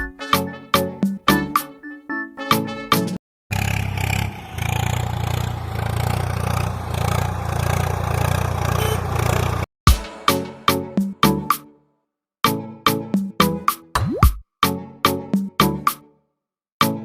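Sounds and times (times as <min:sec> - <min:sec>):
music: 0:00.0 - 0:03.2, 0:09.9 - 0:17.0
engine running with clattering rumble: 0:03.5 - 0:09.7.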